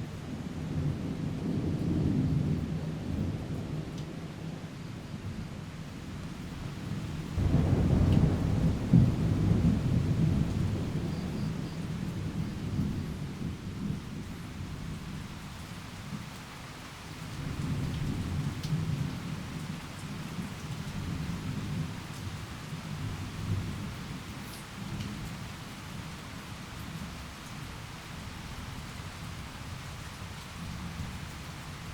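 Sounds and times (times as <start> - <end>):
rain falling steadily: 0.0 - 31.9
rolling thunder: 6.1 - 15.4.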